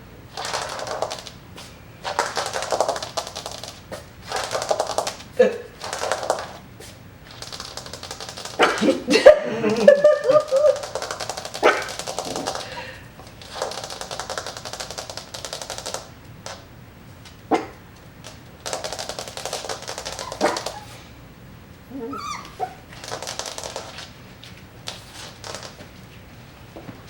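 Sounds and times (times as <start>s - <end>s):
puppy whining: 19.7s - 21.1s, 21.8s - 23.4s.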